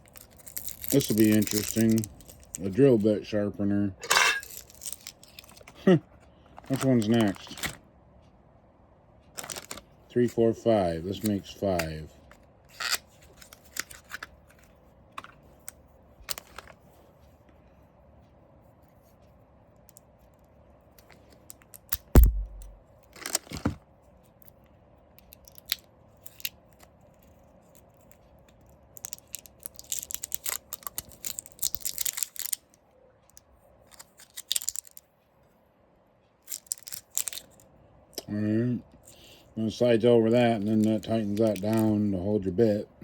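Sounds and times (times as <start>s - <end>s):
plastic wrapping tearing and crinkling: 0.0s - 2.7s, 4.4s - 5.6s, 9.4s - 9.8s, 22.2s - 23.6s, 29.0s - 32.6s, 34.0s - 35.0s, 36.5s - 37.5s
heavy thump: 22.2s - 22.8s.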